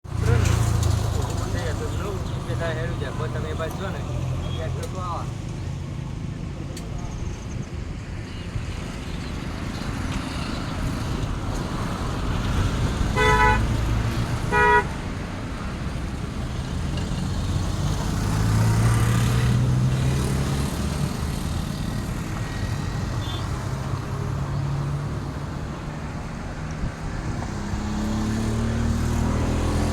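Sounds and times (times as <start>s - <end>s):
road traffic rumble: 0.0s - 29.9s
vehicle horn tooting: 13.2s - 13.8s, 14.5s - 15.0s, 23.2s - 23.5s
vehicle passing: 15.7s - 29.9s.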